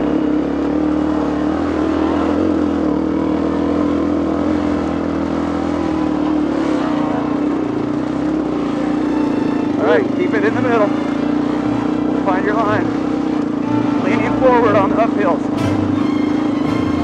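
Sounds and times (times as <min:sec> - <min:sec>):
dirt bike engine running: 0:09.7 - 0:15.6.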